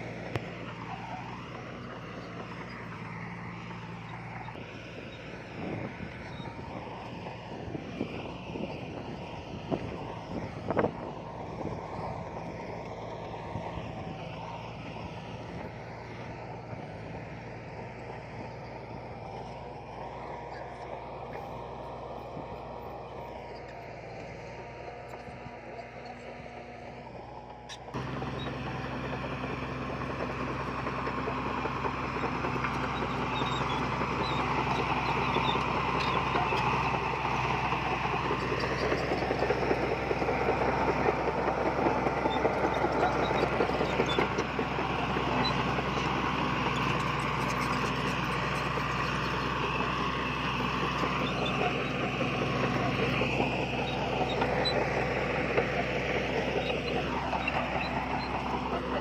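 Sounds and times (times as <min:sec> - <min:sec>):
heavy diesel machinery clattering: 0:28.0 - 0:59.0.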